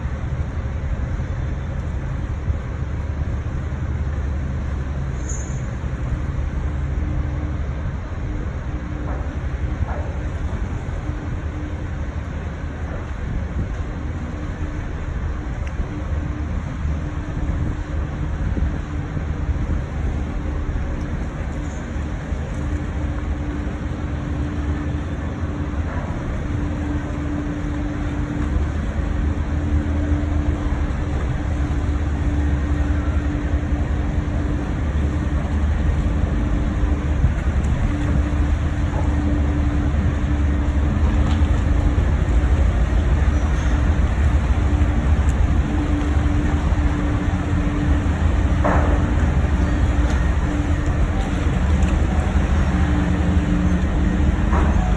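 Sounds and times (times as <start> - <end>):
boat engine low drone: 0.0 - 54.9
humming tone: 21.7 - 54.9.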